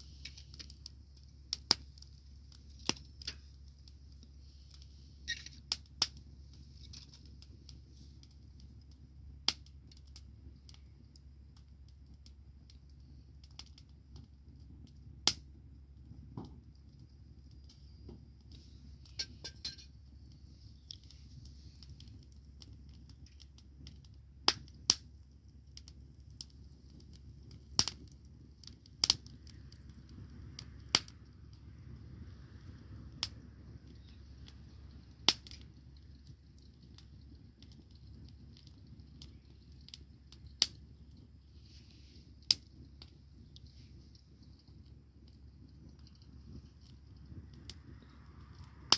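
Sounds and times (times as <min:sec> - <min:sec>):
bonfire crackling and popping: 0:00.0 - 0:48.9
low steady rumble: 0:00.0 - 0:48.9.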